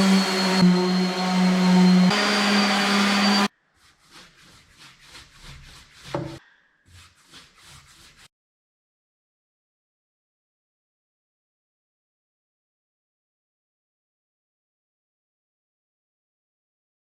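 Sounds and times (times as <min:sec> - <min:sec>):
power tool motor humming: 0:00.0 - 0:03.5
wood tapping and rubbing: 0:04.4 - 0:06.4.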